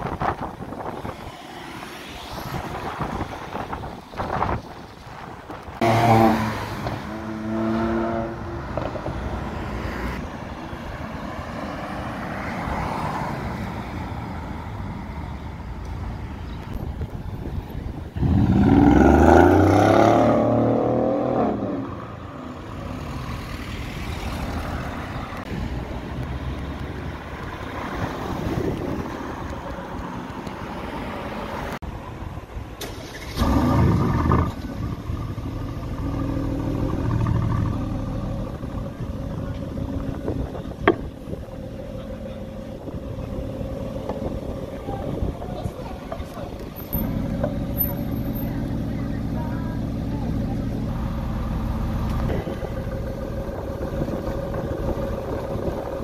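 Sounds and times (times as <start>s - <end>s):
cars passing: 0.0s - 56.0s
car engine accelerating hard: 18.2s - 22.0s.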